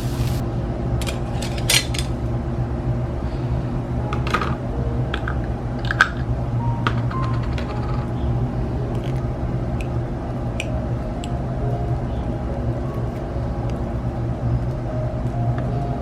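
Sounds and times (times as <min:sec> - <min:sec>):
steady low hum: 0:00.0 - 0:16.0
dishes and utensils clinking: 0:01.0 - 0:02.2.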